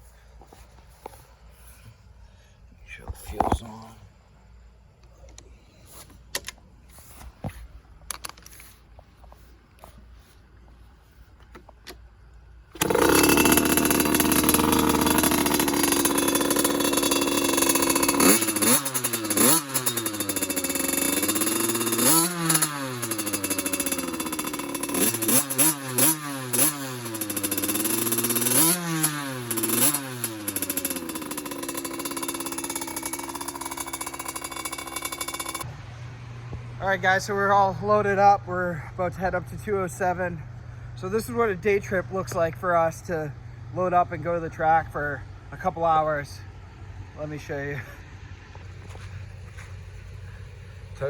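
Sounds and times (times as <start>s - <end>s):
motocross bike engine revving: 12.7s - 48.0s.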